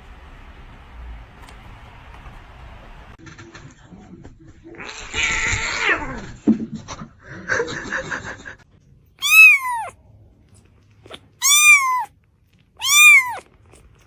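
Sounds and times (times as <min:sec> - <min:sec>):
cat meowing: 0:09.2 - 0:09.9, 0:11.4 - 0:12.1, 0:12.8 - 0:13.5
rough noisy cat cry: 0:09.2 - 0:09.9, 0:11.4 - 0:12.1, 0:12.8 - 0:13.5.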